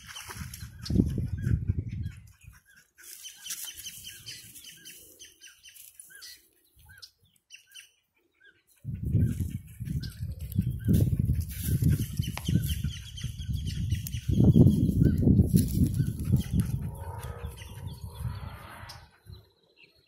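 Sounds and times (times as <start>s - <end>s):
wind rumble on microphone: 0.0s - 2.7s, 8.8s - 19.6s
small birds chirping: 0.0s - 20.0s.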